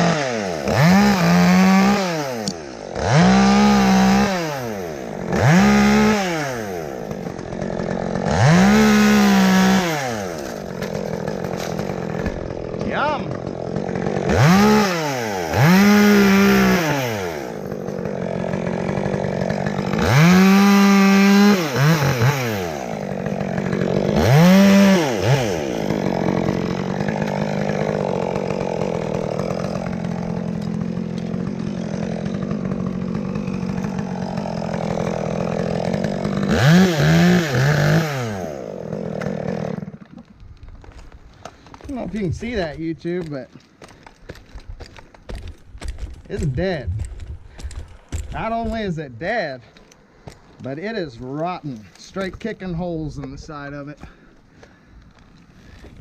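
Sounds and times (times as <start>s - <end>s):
chainsaw engine revving: 0.0s - 56.0s.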